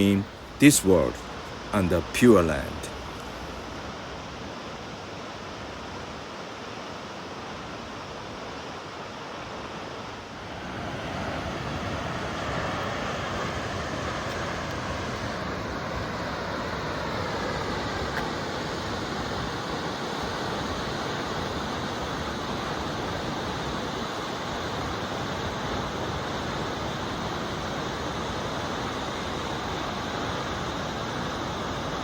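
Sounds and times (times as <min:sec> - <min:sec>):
waterfall rushing: 0:00.0 - 0:04.6.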